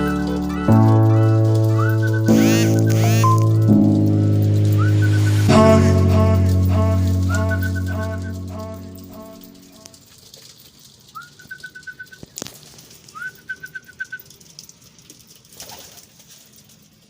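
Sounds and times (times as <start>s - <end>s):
pigeon trills: 0.0s - 3.8s.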